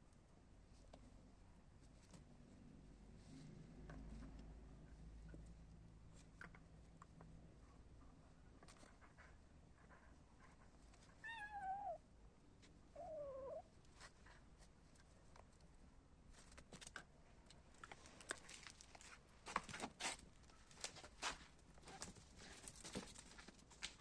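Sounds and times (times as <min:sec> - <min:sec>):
kitten meowing: 0:11.2 - 0:12.0, 0:13.0 - 0:13.7.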